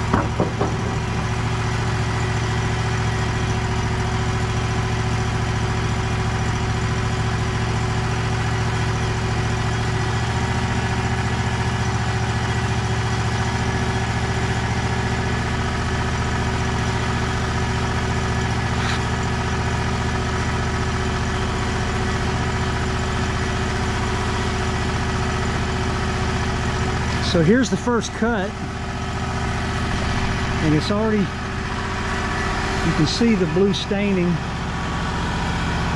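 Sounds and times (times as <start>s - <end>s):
sawmill engine running: 0.0s - 35.9s.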